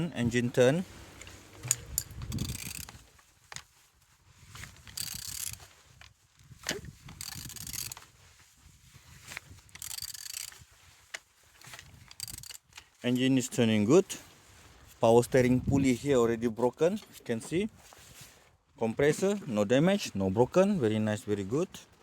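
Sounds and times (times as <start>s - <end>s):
sharp metal clicks: 1.2s - 3.0s, 4.9s - 5.6s, 6.7s - 8.0s, 9.8s - 10.6s, 11.6s - 12.8s.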